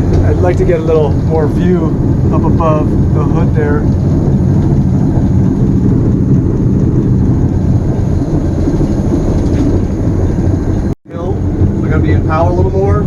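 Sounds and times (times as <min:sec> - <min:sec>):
locomotive engine idling: 0:11.1 - 0:13.0.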